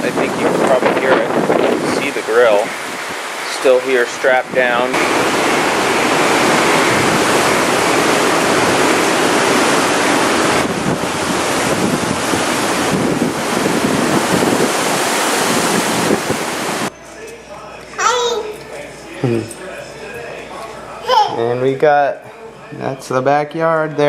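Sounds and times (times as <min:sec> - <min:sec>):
hurricane wind and rain: 0:00.0 - 0:16.9
wind buffeting microphone: 0:00.0 - 0:16.9.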